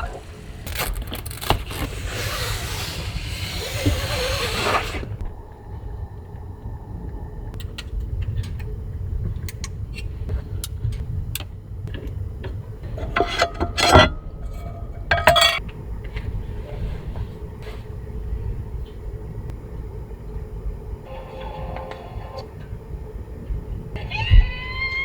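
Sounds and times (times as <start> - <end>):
kitchenware clinking and clattering: 12.9 - 15.6.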